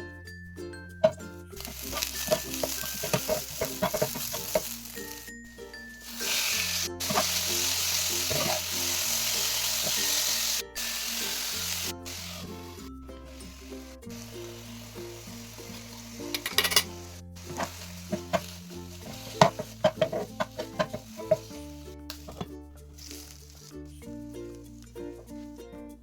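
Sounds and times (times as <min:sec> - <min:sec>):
background music: 0:00.0 - 0:26.0
stirring clicks and crackles: 0:01.0 - 0:04.8, 0:19.1 - 0:21.5
chicken sizzling in oil: 0:01.0 - 0:23.7.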